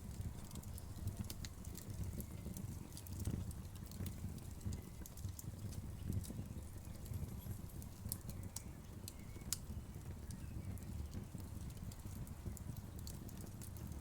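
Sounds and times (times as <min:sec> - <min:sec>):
fire flames rumbling: 0:00.0 - 0:14.0
wood fire crackling: 0:00.0 - 0:14.0.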